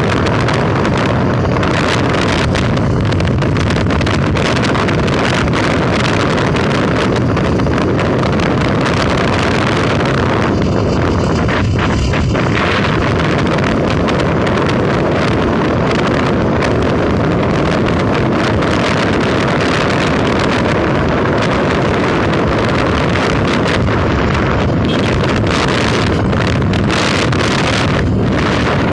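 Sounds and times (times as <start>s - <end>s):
vehicle running noise: 0.0s - 28.9s
wind buffeting microphone: 0.0s - 28.9s.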